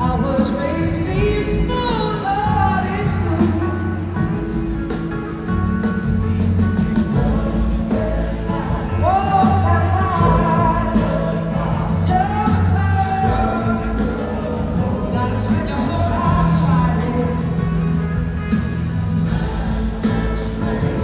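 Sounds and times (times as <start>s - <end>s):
woman singing: 0.0s - 4.1s, 7.2s - 17.6s
live soul-rock band: 0.0s - 21.0s.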